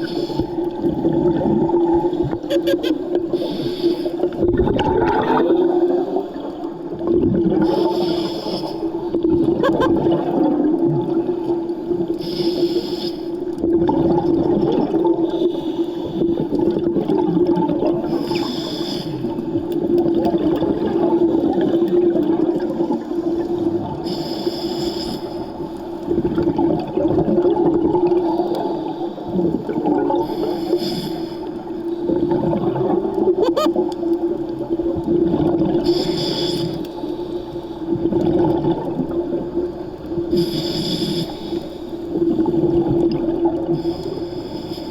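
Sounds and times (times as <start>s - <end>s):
underwater bubbling: 0.0s - 44.9s
regulator breathing hiss: 3.4s - 4.2s, 7.6s - 8.9s, 12.2s - 13.4s, 18.1s - 19.3s, 24.0s - 25.6s, 30.2s - 31.6s, 35.8s - 37.5s, 40.3s - 42.0s, 43.8s - 44.9s.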